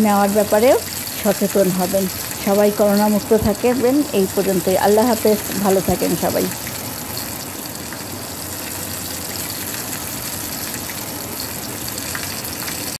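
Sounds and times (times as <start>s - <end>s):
chicken frying in hot oil: 0.0s - 13.0s.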